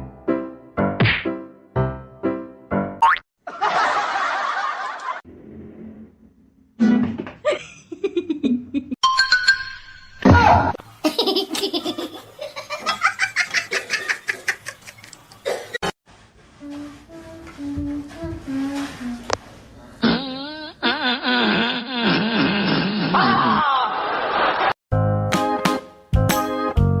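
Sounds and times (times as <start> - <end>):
music: 0.0 - 3.0, 24.9 - 27.0
people laughing: 3.4 - 5.2, 11.0 - 15.2, 22.6 - 24.8.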